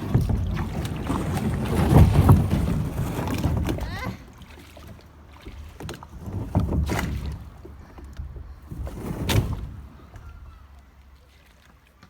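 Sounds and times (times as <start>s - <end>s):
water splashing around a kayak: 0.0s - 12.0s.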